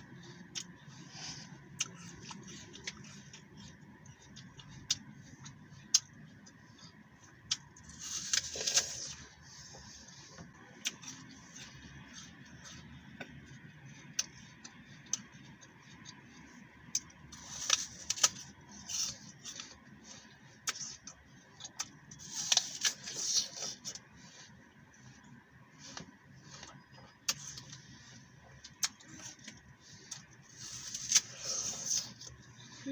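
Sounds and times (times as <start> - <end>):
apple crunching: 6.8 - 9.4, 10.5 - 19.9, 28.6 - 32.9.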